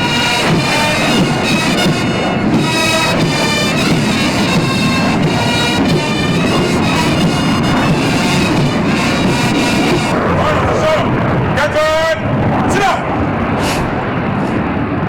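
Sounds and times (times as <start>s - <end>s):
bagpipes: 0.0s - 10.9s
military band playing: 0.0s - 13.0s.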